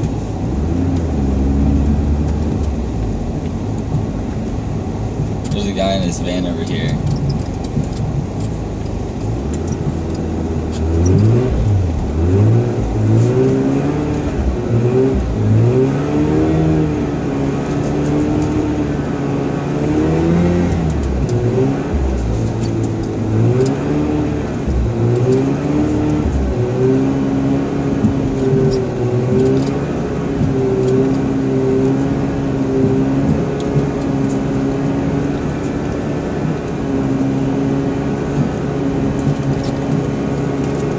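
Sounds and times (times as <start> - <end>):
rotary engine revving: 0.0 - 4.4, 5.2 - 40.9.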